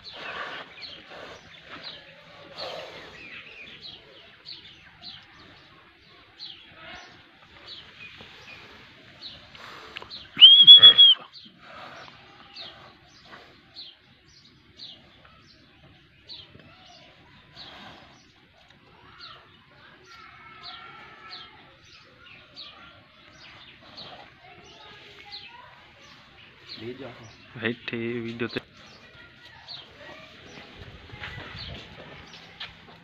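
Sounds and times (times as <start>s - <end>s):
small birds chirping: 0.0s - 33.0s
loud high whistle: 10.4s - 11.3s.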